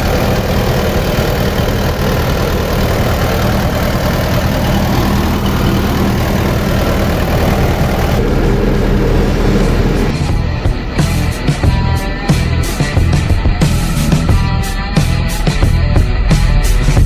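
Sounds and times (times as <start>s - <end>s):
excavator diesel engine idling: 0.0s - 14.9s.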